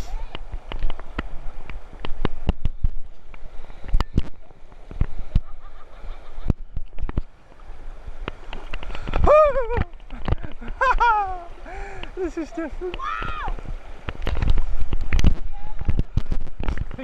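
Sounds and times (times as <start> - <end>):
fast-flowing river water: 0.1 - 17.0
splashes and sharp knocks: 8.2 - 17.0.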